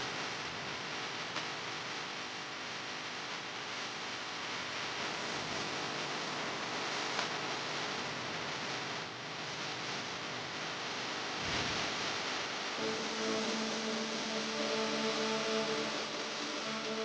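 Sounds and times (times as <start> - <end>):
steady hiss: 9.4 - 17.0.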